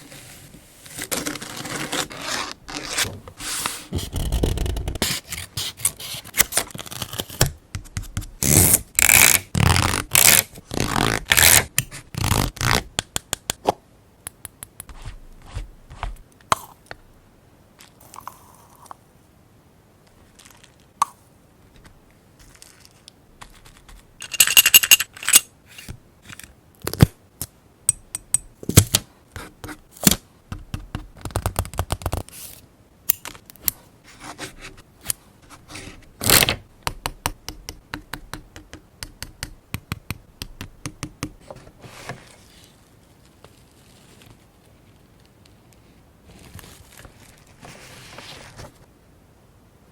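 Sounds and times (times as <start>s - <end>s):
paper rubbing and scraping: 0.0s - 7.3s, 46.3s - 48.9s.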